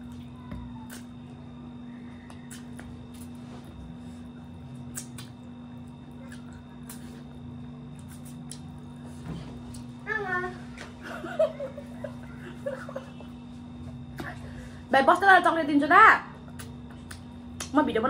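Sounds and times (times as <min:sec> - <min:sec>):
steady low hum: 0:00.0 - 0:18.0
wet chewing and mouth smacks: 0:02.2 - 0:03.4, 0:04.5 - 0:08.9, 0:16.4 - 0:17.8.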